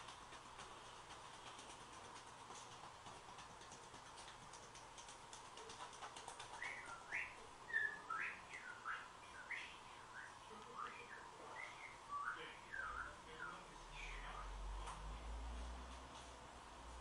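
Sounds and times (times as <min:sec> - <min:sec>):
faint steady hum: 0:00.0 - 0:17.0
bird chirping: 0:05.6 - 0:14.5.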